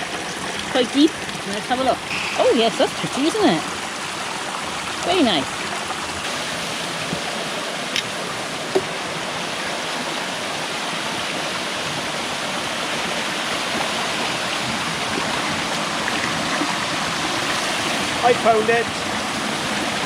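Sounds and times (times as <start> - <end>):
stream over small waterfall: 0.0 - 20.0.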